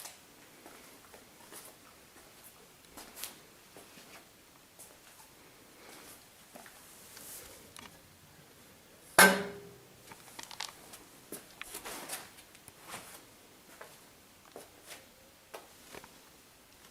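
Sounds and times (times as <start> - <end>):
small clicks and rustles: 10.1 - 13.2, 15.8 - 16.9.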